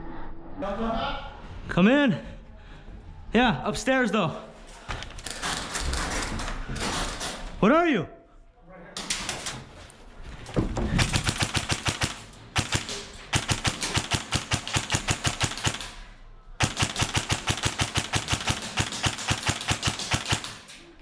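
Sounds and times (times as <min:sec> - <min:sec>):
airsoft rifle bursts: 0:11.0 - 0:16.0, 0:16.6 - 0:20.9.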